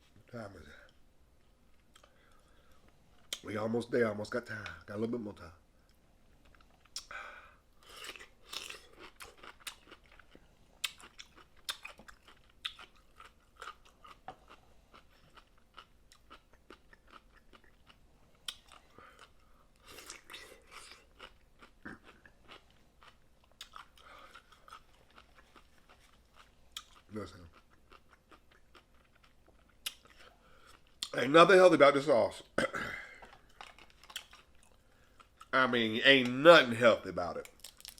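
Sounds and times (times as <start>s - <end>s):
crab eating crunches: 6.5s - 31.1s, 37.4s - 37.9s.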